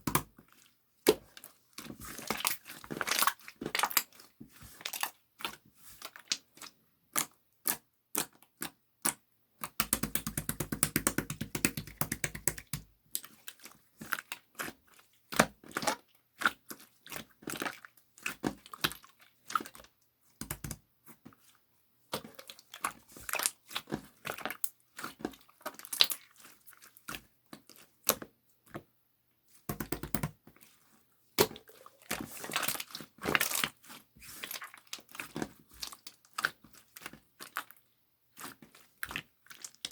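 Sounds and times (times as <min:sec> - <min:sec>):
slime squished by hand: 0:31.4 - 0:37.8.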